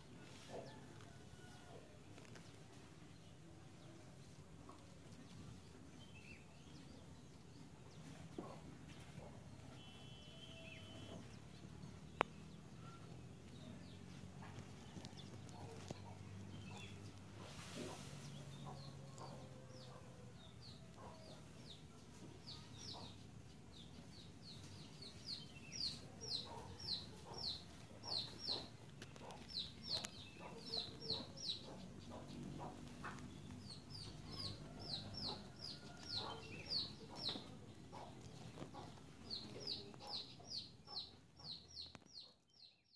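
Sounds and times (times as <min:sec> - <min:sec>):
bird chirping: 0:09.5 - 0:42.9.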